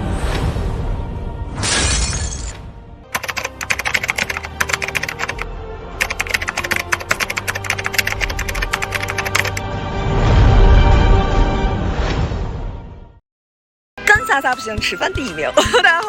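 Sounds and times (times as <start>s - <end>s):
background music: 0.0s - 12.0s, 14.0s - 16.0s
rapid keyboard-like clicking: 3.2s - 5.4s, 6.0s - 9.6s.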